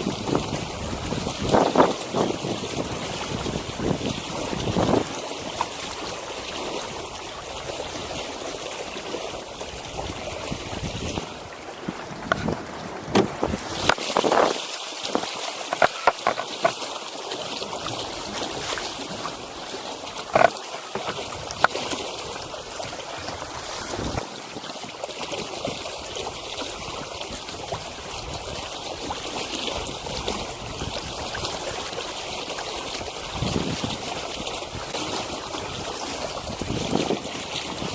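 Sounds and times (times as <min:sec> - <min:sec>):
water lapping against hull: 0:00.0 - 0:37.9.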